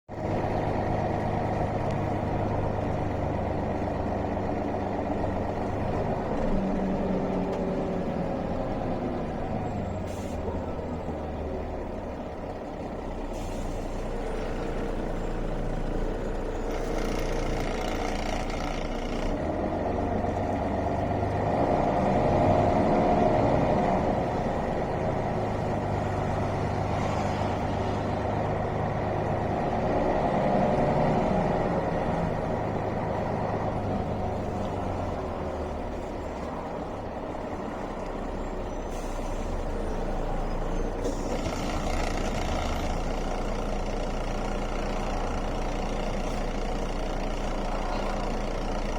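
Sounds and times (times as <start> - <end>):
bus engine running: 0.1 - 48.9
air brake hiss: 13.3 - 14.3, 38.8 - 39.7.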